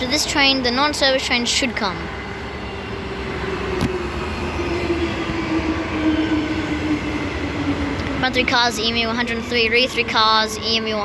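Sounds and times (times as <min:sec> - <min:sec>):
electric train motor whine: 0:02.0 - 0:08.2.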